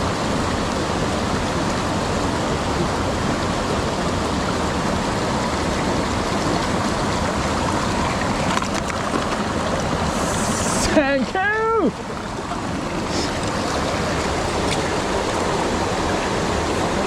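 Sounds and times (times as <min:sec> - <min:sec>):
fast-flowing stream rushing: 0:00.0 - 0:17.0.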